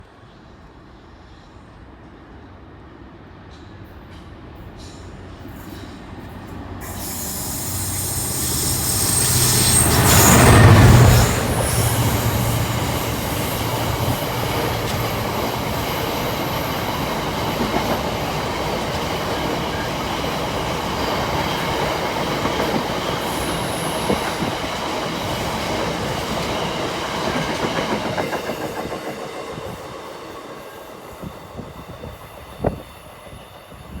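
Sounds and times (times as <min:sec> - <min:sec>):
diesel locomotive passing: 0:00.0 - 0:34.0.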